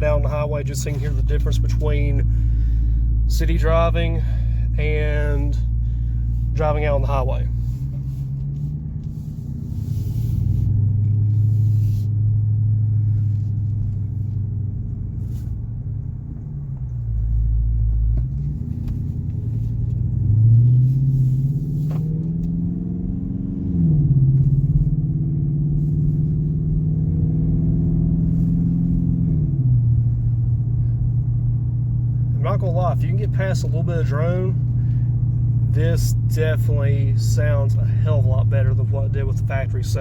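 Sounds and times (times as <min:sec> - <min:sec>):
car exhaust drone from inside: 0:00.0 - 0:40.0.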